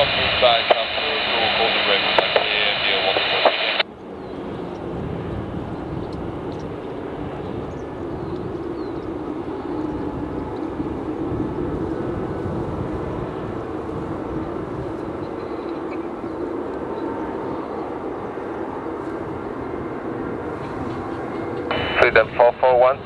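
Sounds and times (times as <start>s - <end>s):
low engine hum: 0.0s - 22.7s
jet engines rushing: 0.0s - 23.0s.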